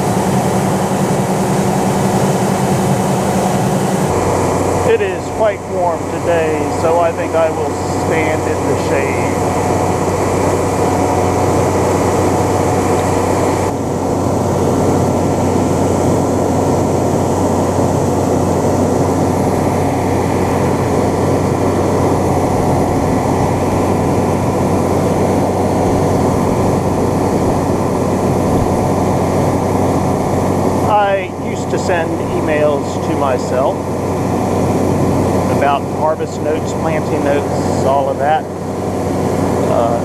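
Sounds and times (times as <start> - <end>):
heavy engine humming: 0.0 - 40.0.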